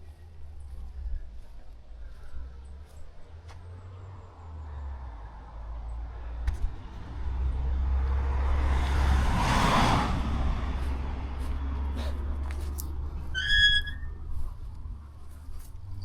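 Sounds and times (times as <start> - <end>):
car passing by: 3.3 - 13.3.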